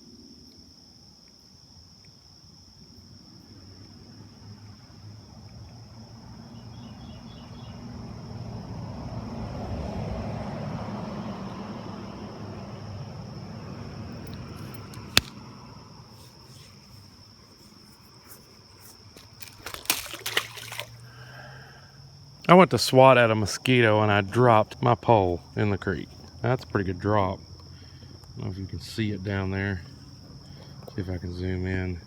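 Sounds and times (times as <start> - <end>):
insect drone: 0.0 - 32.0
sharp click: 14.9 - 15.4.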